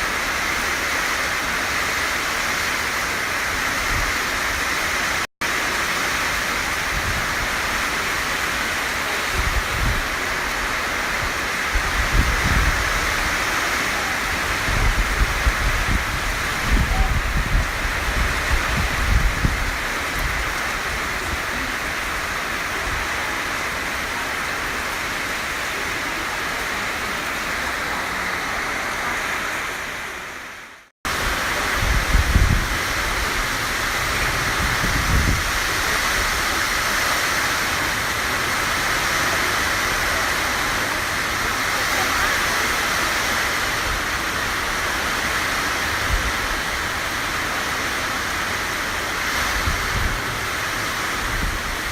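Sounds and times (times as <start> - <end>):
heavy rain pouring: 0.0 - 51.9
wind buffeting microphone: 9.3 - 10.2, 11.1 - 13.4, 14.2 - 21.6, 31.6 - 37.2, 49.2 - 51.9.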